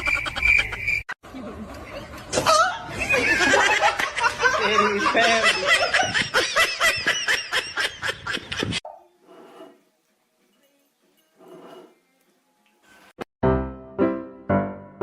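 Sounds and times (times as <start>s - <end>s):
people laughing: 1.5s - 8.8s.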